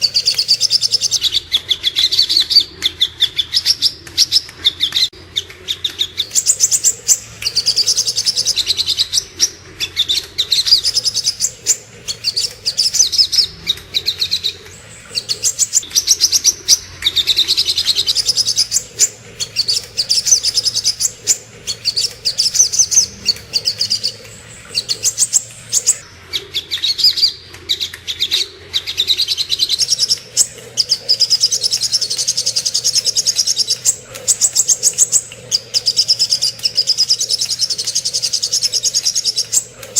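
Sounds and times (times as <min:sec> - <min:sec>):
bird high chipping song: 0:00.0 - 0:39.9.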